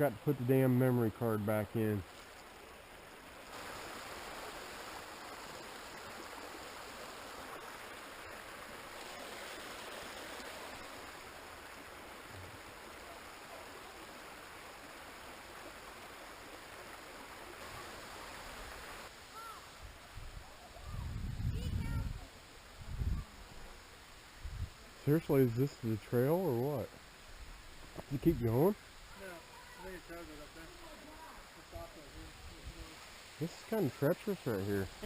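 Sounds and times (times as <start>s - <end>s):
stream water rushing: 0.0s - 21.2s, 22.0s - 35.0s.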